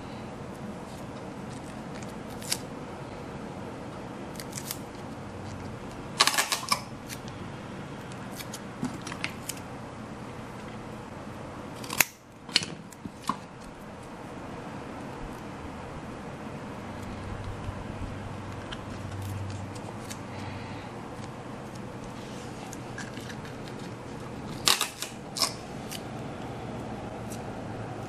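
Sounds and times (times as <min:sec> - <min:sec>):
scissors snipping: 0:04.3 - 0:04.9
sharp clicks handling materials: 0:06.2 - 0:07.3, 0:22.7 - 0:26.1.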